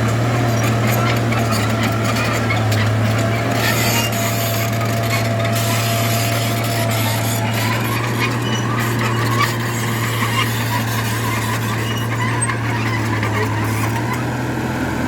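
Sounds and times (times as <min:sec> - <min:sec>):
heavy diesel engine running: 0:00.0 - 0:15.0
metallic squeaks and clinks: 0:00.4 - 0:14.2.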